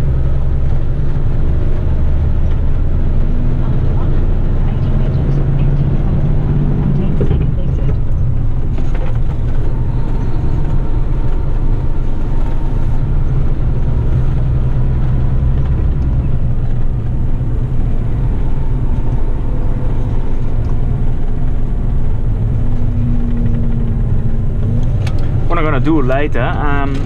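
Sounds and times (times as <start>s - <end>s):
road rumble: 0.0s - 27.0s
truck diesel engine running: 0.0s - 27.0s.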